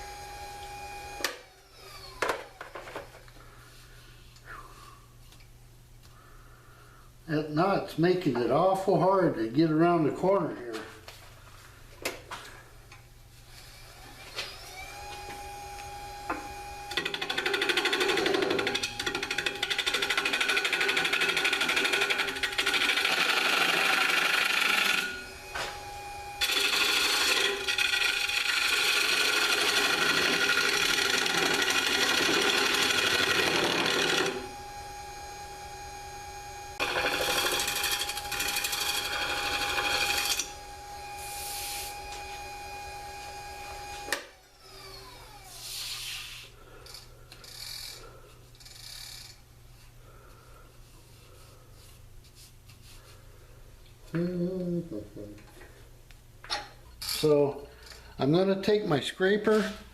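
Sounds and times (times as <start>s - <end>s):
lathe motor whining: 0.0s - 2.7s, 13.5s - 45.9s
gouge cutting wood: 17.0s - 25.1s, 26.4s - 34.4s, 36.8s - 40.5s.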